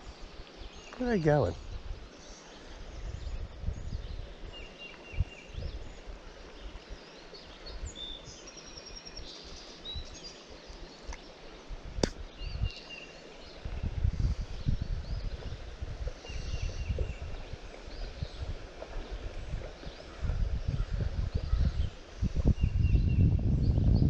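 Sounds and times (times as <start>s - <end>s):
sharp click: 12.0s - 12.2s.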